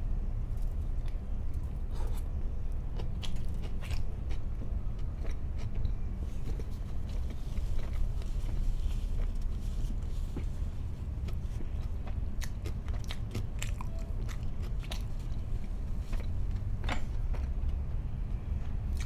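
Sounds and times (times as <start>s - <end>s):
steady low hum: 0.0s - 19.0s
person chewing: 3.0s - 16.7s.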